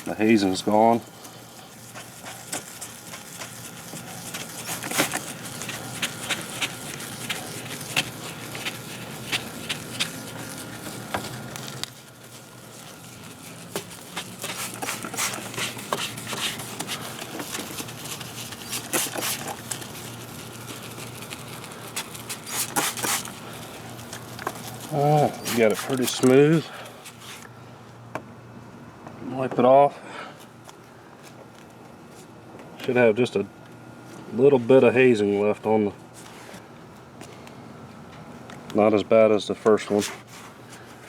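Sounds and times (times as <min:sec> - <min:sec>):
hand wet-sanding plastic: 0:00.0 - 0:27.5.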